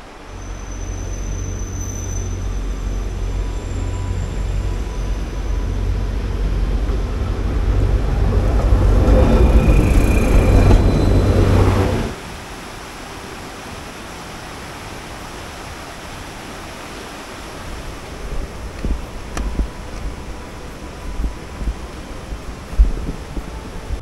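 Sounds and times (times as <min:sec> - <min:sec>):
diesel railcar engine rumble: 0:00.0 - 0:12.2
river water rushing: 0:00.0 - 0:24.0.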